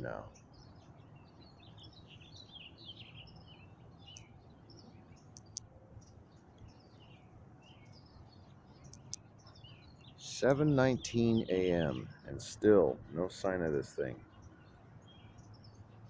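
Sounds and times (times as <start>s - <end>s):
distant songbirds chirping: 0.0s - 16.0s
sharp clicks: 5.3s - 6.2s, 8.9s - 9.3s.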